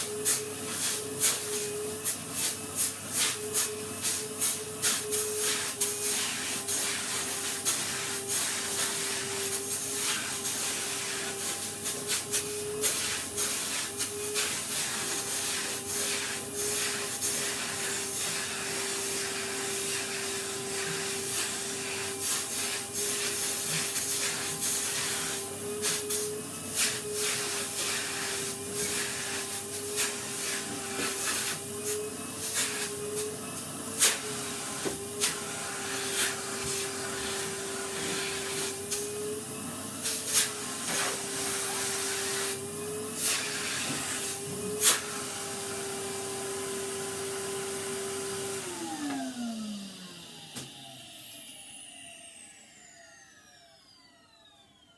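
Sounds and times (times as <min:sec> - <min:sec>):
vacuum cleaner running: 0:00.0 - 0:54.9.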